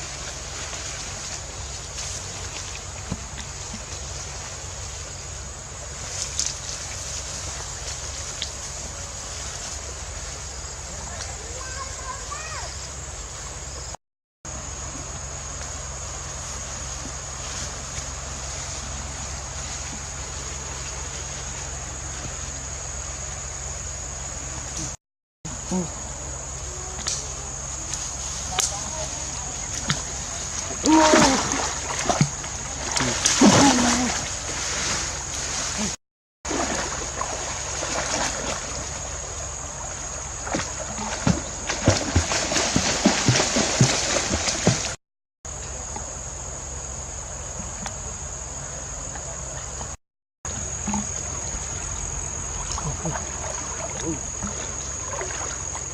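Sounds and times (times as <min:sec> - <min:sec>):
water splashing and sloshing: 0:00.0 - 0:13.0, 0:27.7 - 0:45.0, 0:49.1 - 0:55.9
high-pitched insect drone: 0:00.0 - 0:44.9, 0:50.5 - 0:55.9.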